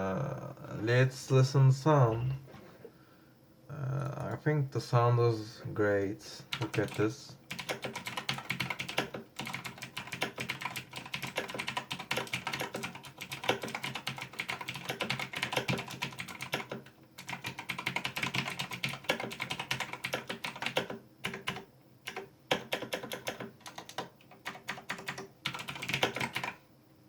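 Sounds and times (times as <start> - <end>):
mechanical keyboard typing: 6.5 - 26.6.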